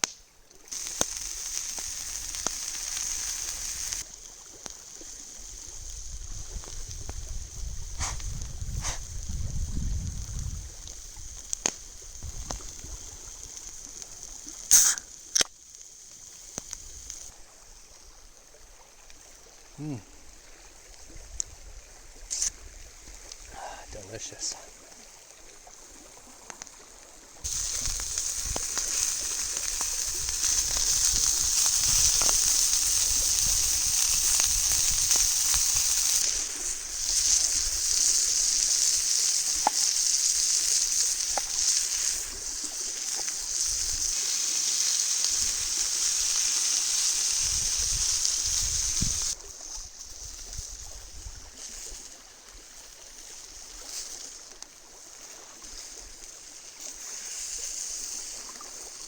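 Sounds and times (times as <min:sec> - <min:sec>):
food sizzling in a pan: 0:00.0 - 0:18.0, 0:27.4 - 0:51.0, 0:55.2 - 0:59.0.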